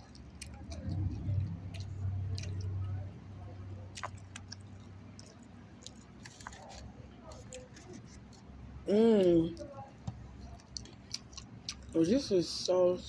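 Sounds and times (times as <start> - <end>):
wet chewing mouth sounds: 0.0 - 8.5, 10.4 - 12.0.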